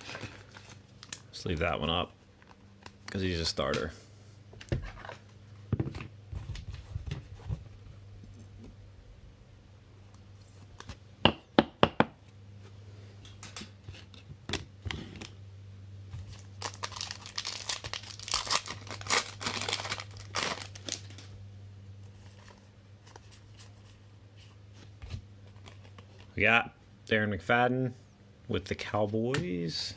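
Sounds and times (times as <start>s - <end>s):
wrapper tearing and crinkling: 16.2s - 21.3s.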